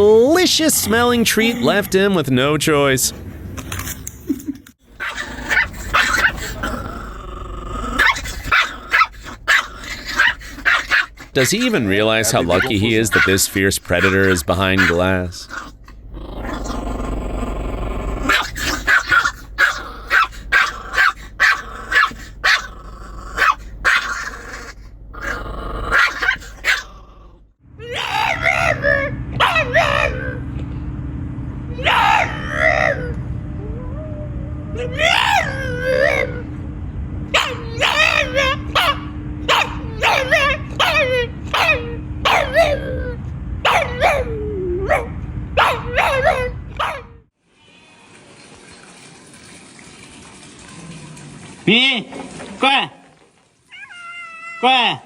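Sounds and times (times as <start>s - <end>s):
dog growling: 0.7s - 1.9s, 4.9s - 30.4s, 37.4s - 45.0s
dog barking sharply: 8.0s - 11.8s, 12.5s - 13.4s, 14.0s - 15.7s, 18.3s - 22.7s, 23.4s - 24.2s, 25.9s - 26.9s, 29.4s - 30.1s, 37.4s - 42.8s, 43.7s - 44.2s, 44.9s - 47.1s.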